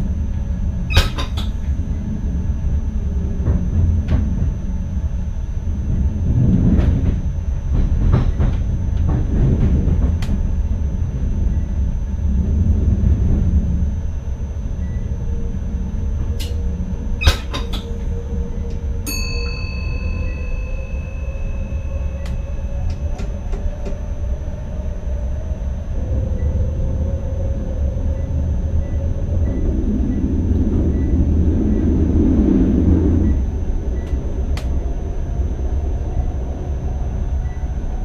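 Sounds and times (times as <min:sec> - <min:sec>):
train running rumble: 0:00.0 - 0:38.0
faint whine rising in pitch: 0:10.4 - 0:38.0
steady tone: 0:17.8 - 0:36.8.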